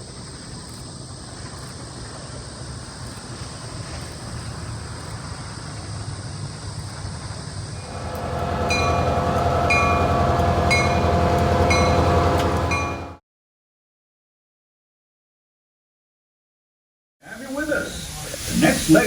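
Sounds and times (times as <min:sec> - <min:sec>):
steam train rumble: 0:00.0 - 0:13.2, 0:17.4 - 0:19.0.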